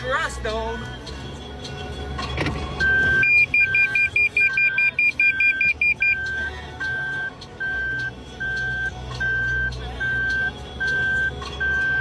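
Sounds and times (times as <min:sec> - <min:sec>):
faster higher beep: 0:02.8 - 0:12.0
steady car warning beep: 0:02.8 - 0:12.0.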